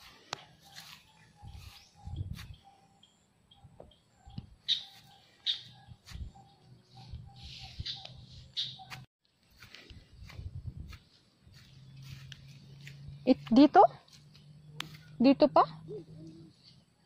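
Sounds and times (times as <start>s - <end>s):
footsteps on grass: 0.0s - 2.6s, 4.8s - 6.4s, 8.1s - 15.2s
birds chirping: 0.0s - 9.1s, 11.0s - 17.0s.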